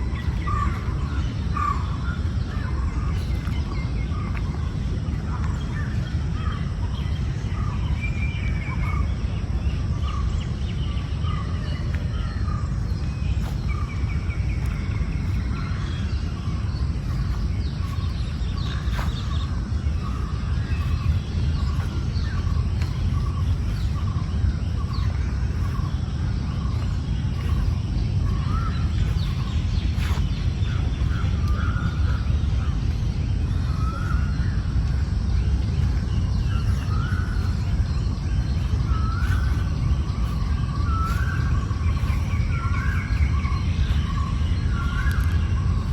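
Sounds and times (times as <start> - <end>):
birds calling repeated notes: 0.0 - 45.9
steady low rumble: 0.0 - 45.9
high bird chirps: 11.4 - 45.9.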